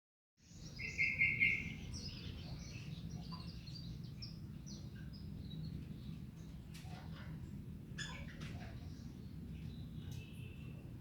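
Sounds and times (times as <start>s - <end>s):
canary singing: 0.6s - 2.5s.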